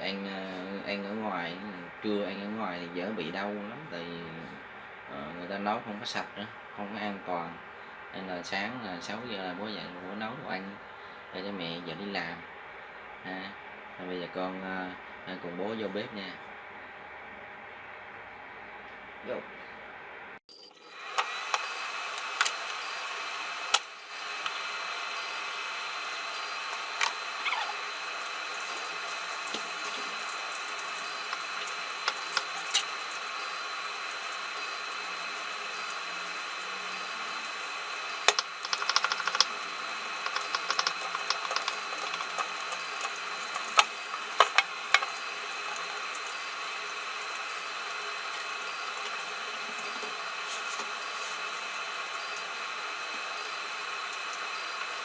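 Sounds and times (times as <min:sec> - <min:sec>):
tap water running into sink: 0:38.2 - 0:39.5, 0:40.1 - 0:49.2.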